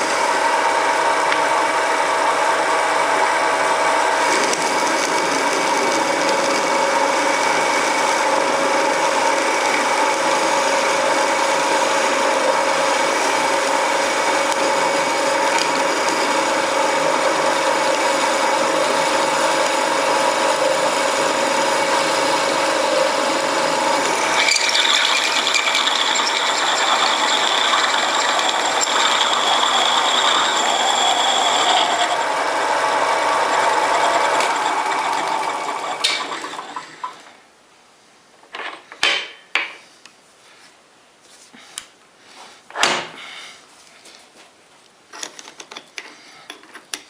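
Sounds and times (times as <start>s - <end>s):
metal lathe running and spinning down: 0.0s - 37.3s.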